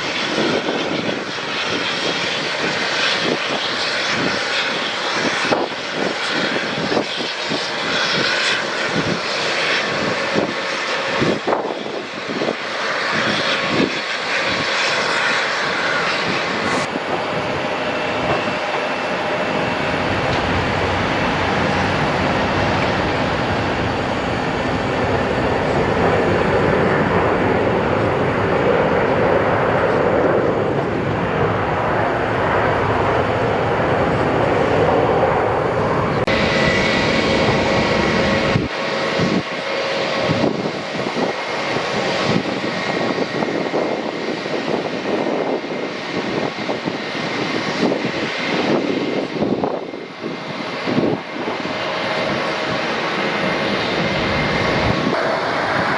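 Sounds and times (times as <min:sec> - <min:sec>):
airliner engine rushing: 0:00.0 - 0:55.9.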